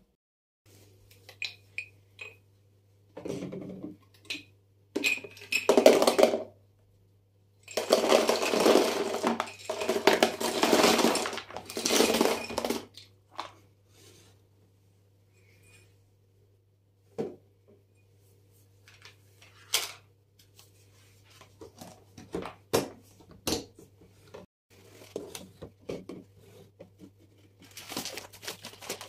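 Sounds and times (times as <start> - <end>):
small hard pieces rattling into container: 7.7 - 12.9
containers clinking: 7.7 - 13.6.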